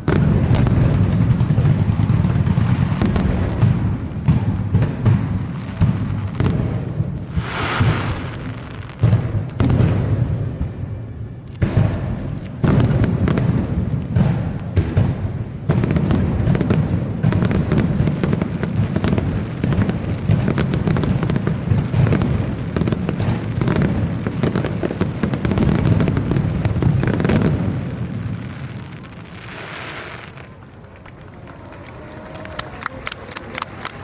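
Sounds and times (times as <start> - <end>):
deep fireworks booms: 0.0 - 34.0
fireworks bursts and crackles: 0.0 - 34.0.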